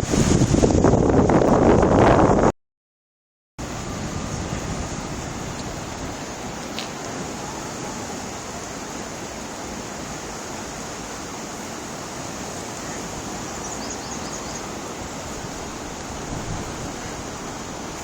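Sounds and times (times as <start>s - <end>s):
floodwater rushing: 3.6s - 18.0s.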